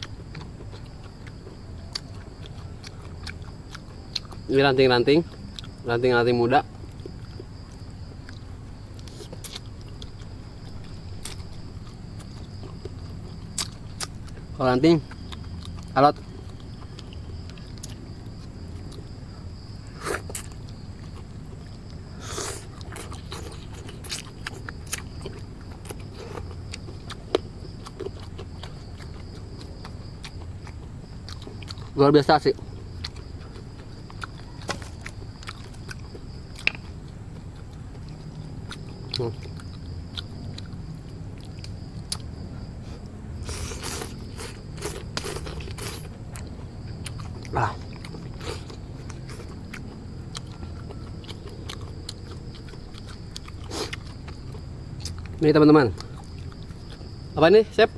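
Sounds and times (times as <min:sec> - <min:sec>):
person chewing crunchy food: 0:00.0 - 0:04.5, 0:05.2 - 0:06.0, 0:06.8 - 0:57.4
twigs being broken and chewed: 0:33.2 - 0:36.9.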